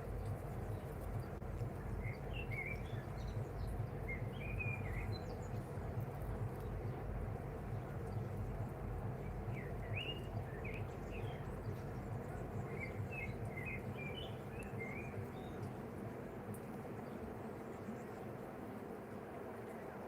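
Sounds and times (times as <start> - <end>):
small bird chirping: 0.0 - 5.8, 9.2 - 15.7
steady rain falling: 0.0 - 20.0.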